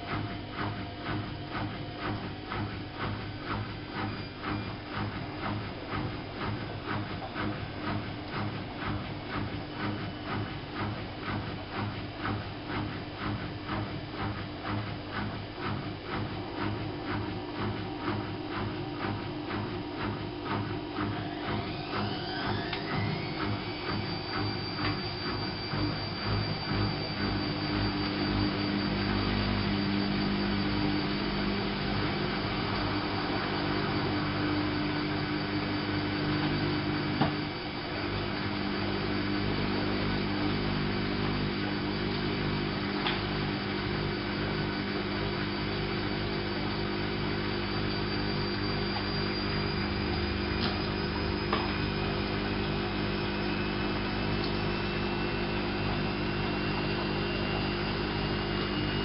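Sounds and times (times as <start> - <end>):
washing machine motor hum: 0.0 - 59.0
high whine: 16.0 - 59.0.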